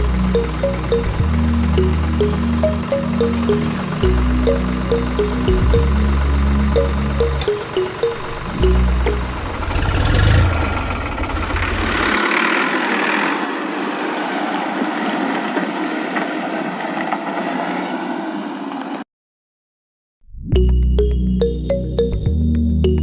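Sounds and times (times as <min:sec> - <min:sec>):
bass-heavy background music: 0:00.0 - 0:10.8, 0:20.4 - 0:23.0
small motor running: 0:00.0 - 0:13.5.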